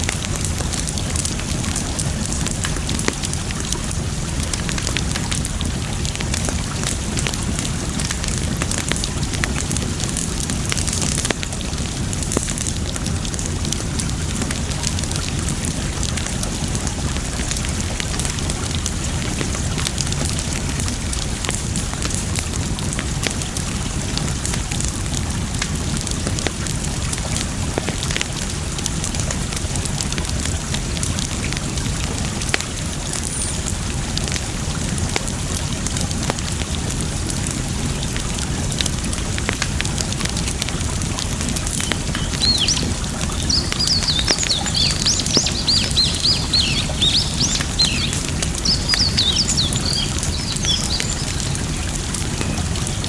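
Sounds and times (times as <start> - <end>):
campfire crackling and popping: 0.0 - 53.0
water flowing: 0.0 - 53.0
bird chirping: 41.8 - 51.5.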